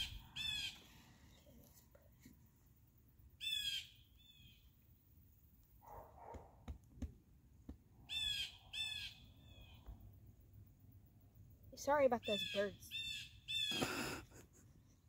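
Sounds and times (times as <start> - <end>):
harsh raspy bird calls: 0.0 - 0.9, 3.4 - 4.6, 8.1 - 9.9, 12.0 - 14.2.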